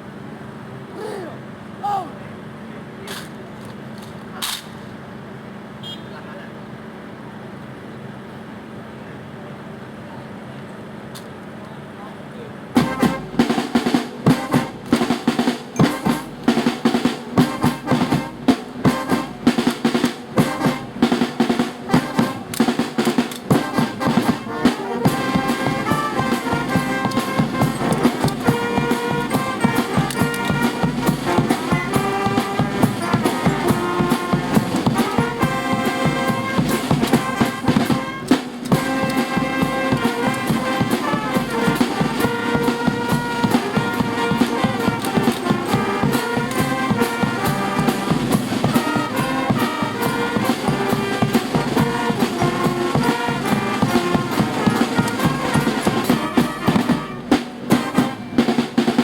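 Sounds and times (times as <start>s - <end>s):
brass band playing a march: 12.7s - 59.0s
drum strokes: 12.8s - 59.0s.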